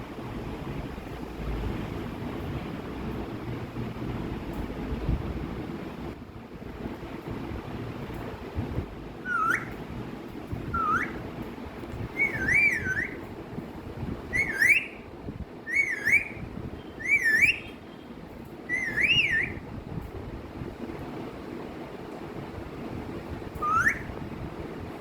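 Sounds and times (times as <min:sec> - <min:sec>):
low rushing background noise: 0:00.0 - 0:25.0
parrot whistling: 0:09.2 - 0:09.8, 0:10.6 - 0:11.3, 0:12.1 - 0:13.3, 0:14.3 - 0:15.0, 0:15.6 - 0:17.8, 0:18.7 - 0:19.7, 0:23.6 - 0:24.2.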